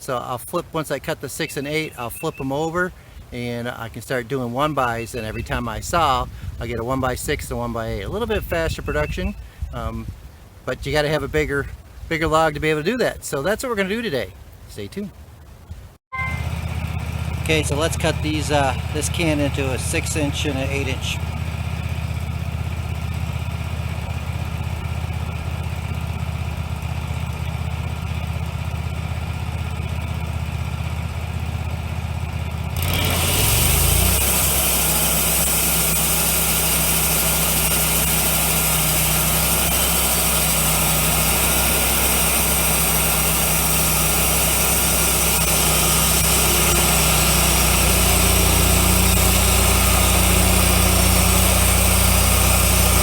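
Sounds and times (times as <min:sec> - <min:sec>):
sawmill engine running: 0:00.0 - 0:53.0
band saw blade hissing: 0:33.2 - 0:53.0.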